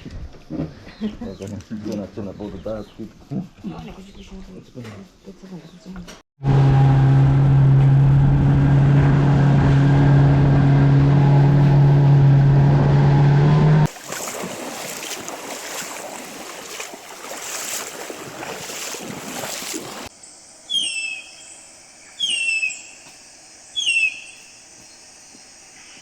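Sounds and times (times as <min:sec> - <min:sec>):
boat motor running: 0:06.4 - 0:25.8.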